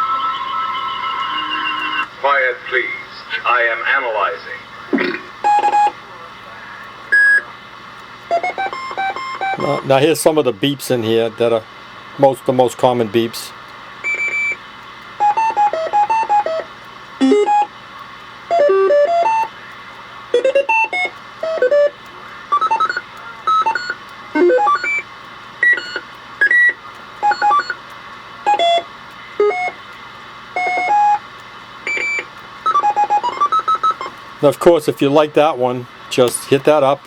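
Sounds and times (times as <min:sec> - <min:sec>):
electronic roger beeps: 0:00.0 - 0:03.9, 0:04.9 - 0:06.0, 0:06.8 - 0:07.5, 0:08.3 - 0:10.0, 0:14.0 - 0:14.6, 0:15.2 - 0:17.8, 0:18.5 - 0:34.8.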